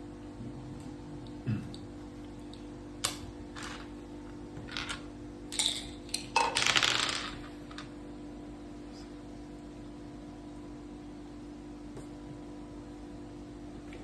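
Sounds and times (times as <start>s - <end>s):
steady low hum: 0.0s - 14.0s
dice clicking and rattling on board: 4.6s - 7.9s.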